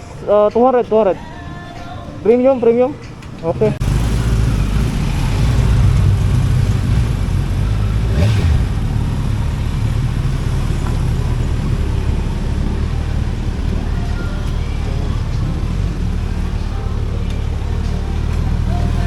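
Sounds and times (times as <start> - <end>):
motorcycle engine running: 3.8 - 19.0.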